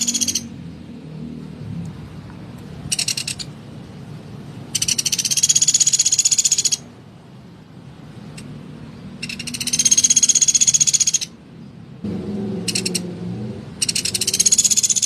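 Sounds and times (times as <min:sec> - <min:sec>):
woodpecker rattling trills: 0:00.0 - 0:00.5, 0:02.9 - 0:03.5, 0:04.7 - 0:06.8, 0:09.2 - 0:11.4, 0:12.6 - 0:13.0, 0:13.8 - 0:15.0.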